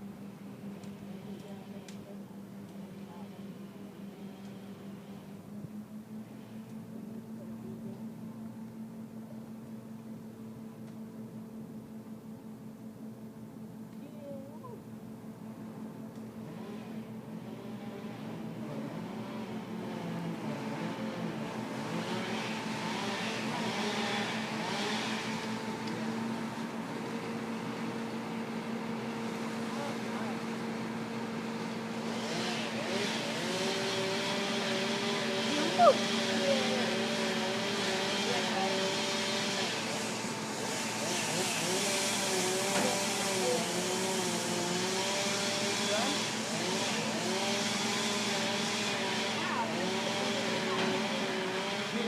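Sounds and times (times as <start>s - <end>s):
engine running steadily: 0.0s - 52.0s.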